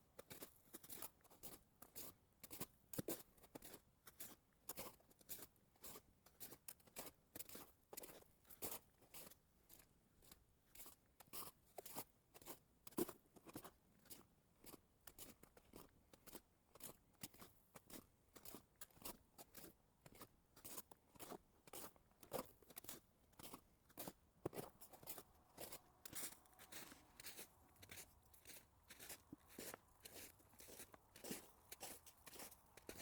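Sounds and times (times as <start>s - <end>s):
footsteps crunching on snow: 22.8s - 33.0s.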